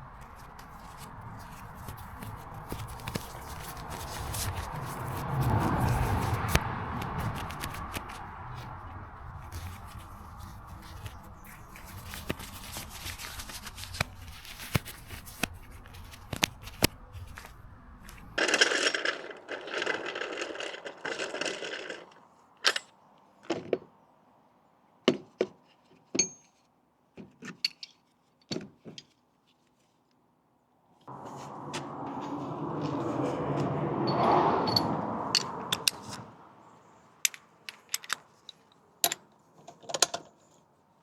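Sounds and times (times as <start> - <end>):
tools scraping and clicking: 18.4 - 23.6, 27.4 - 28.2, 34.1 - 36.4, 37.2 - 40.6.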